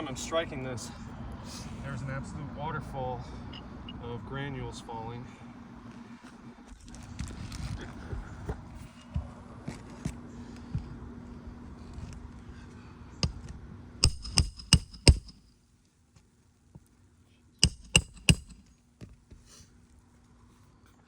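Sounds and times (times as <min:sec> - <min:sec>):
ringing metal tool strikes: 0:14.0 - 0:15.4, 0:17.6 - 0:18.6.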